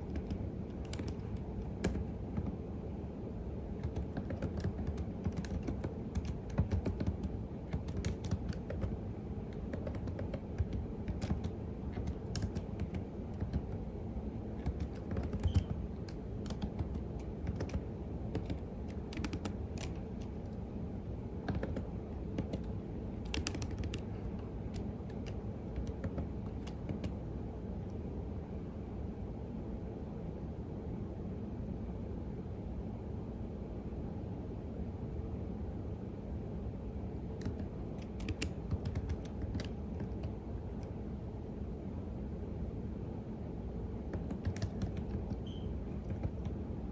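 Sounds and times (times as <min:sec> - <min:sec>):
computer keyboard typing: 0:00.0 - 0:02.6, 0:03.8 - 0:13.9, 0:14.6 - 0:20.6, 0:21.4 - 0:27.2, 0:37.4 - 0:40.9, 0:44.1 - 0:46.6
low background rumble: 0:00.0 - 0:46.9.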